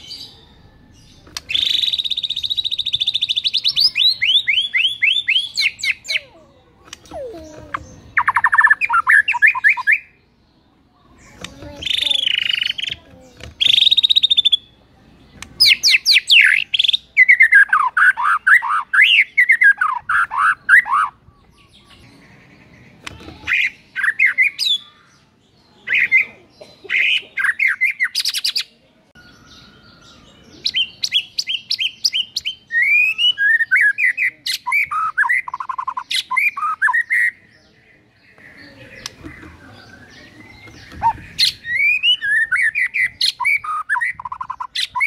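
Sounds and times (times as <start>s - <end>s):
bird singing whistled phrases: 0.0s - 6.3s, 6.9s - 10.2s, 29.2s - 37.4s, 39.9s - 45.0s.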